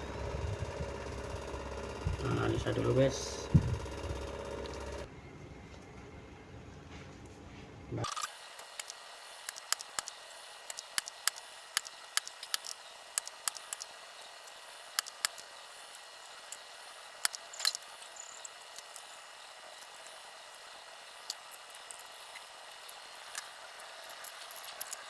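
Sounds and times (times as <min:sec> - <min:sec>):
small tools clicking and tapping: 0:08.6 - 0:19.1.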